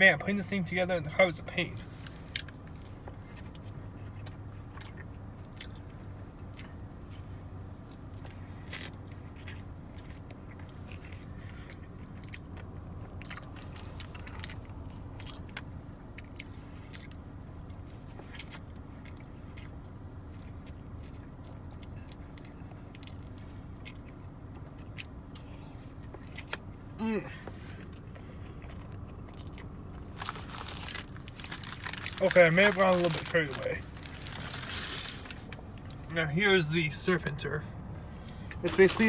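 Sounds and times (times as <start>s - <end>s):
car cabin hum: 0.0s - 39.0s
person chewing crunchy food: 2.0s - 36.1s, 38.3s - 39.0s
wet clicks and crunches: 28.6s - 36.1s, 38.6s - 39.0s.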